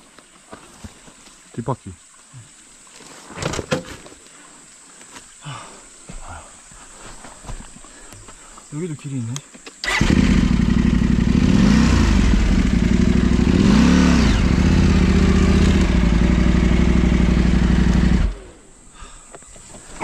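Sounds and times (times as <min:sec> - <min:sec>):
off-road motorcycle engine revving: 0:09.8 - 0:18.7.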